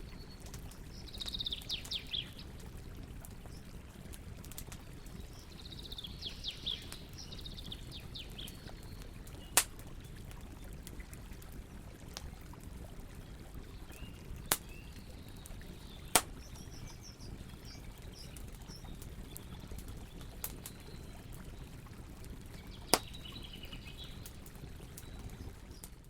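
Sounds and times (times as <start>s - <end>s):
campfire burning: 0.0s - 26.0s
burning wood popping: 8.4s - 11.2s, 14.4s - 20.9s, 21.9s - 26.0s.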